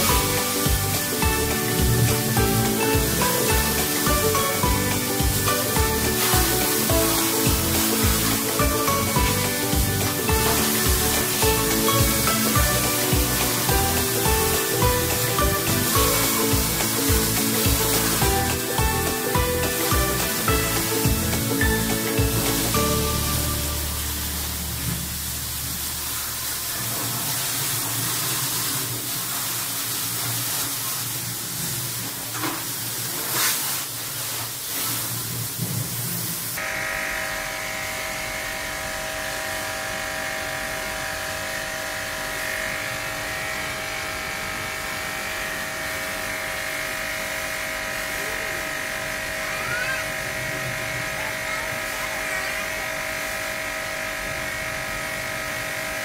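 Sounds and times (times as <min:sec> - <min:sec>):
pressure washer motor whining: 0:00.0 - 0:26.7
pressure washer jet hissing: 0:00.0 - 0:36.9.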